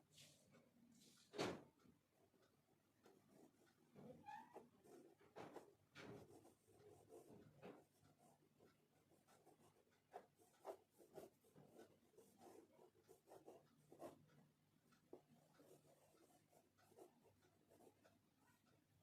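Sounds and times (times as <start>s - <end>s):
pastel scratching on paper: 3.3s - 14.3s, 15.1s - 18.6s.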